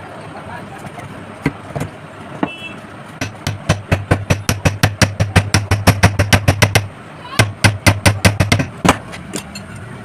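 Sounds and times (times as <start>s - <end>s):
hammer tapping on metal: 3.2s - 9.6s.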